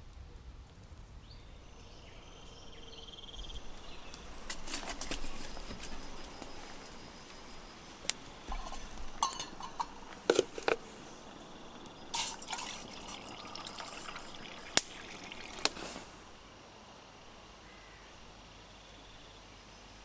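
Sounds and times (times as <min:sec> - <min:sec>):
water splashing and dripping: 0:11.9 - 0:16.3.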